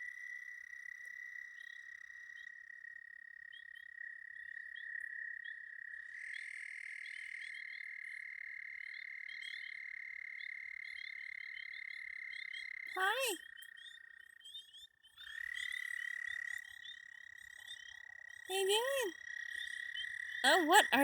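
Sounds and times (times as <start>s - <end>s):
frogs chirping: 0.0s - 21.0s
frogs trilling: 1.2s - 21.0s.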